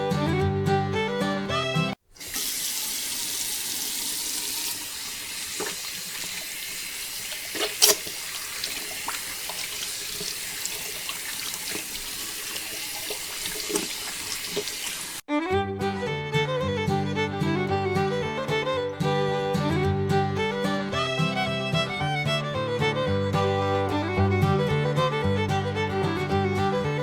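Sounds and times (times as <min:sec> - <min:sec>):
background music: 0:00.0 - 0:02.0, 0:15.3 - 0:27.0
water gushing and splashing: 0:02.1 - 0:15.2
sharp splashes and clicks: 0:05.5 - 0:06.6, 0:07.2 - 0:15.2.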